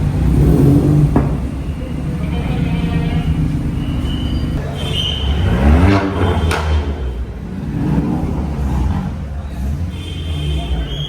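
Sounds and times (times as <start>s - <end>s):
car engines rumbling: 0.0s - 11.0s.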